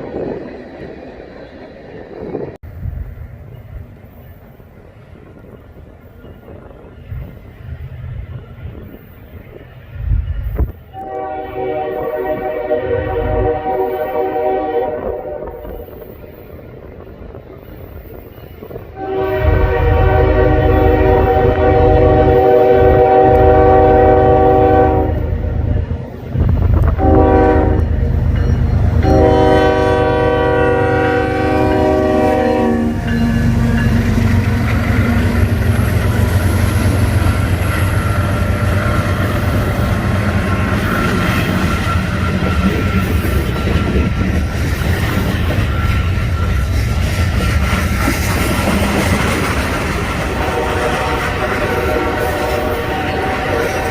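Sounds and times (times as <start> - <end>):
train rumbling past: 0.0 - 53.9
train air horn blasts: 10.9 - 15.9, 19.0 - 25.6, 26.8 - 28.0, 29.0 - 34.0, 50.2 - 53.9
wheels clattering on rail: 25.6 - 53.9.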